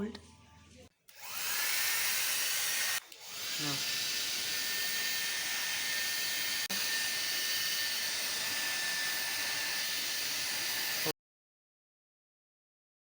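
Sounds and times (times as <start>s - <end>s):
hair dryer blowing: 1.1s - 11.1s.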